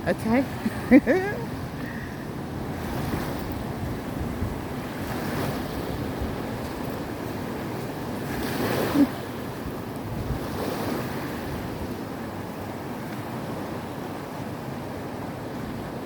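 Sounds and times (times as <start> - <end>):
wind on microphone: 0.0 - 12.6
surf washing on shore: 0.0 - 16.0.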